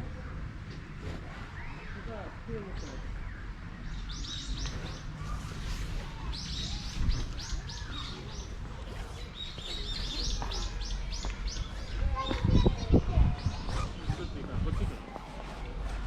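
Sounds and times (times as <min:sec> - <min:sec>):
small birds chirping: 0:00.1 - 0:15.5.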